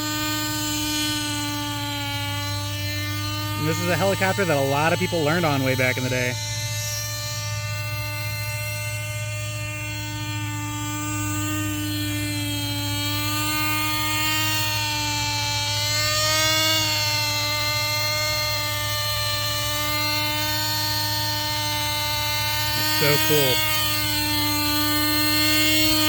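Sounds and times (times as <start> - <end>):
rc helicopter engine buzzing: 0.0 - 26.0.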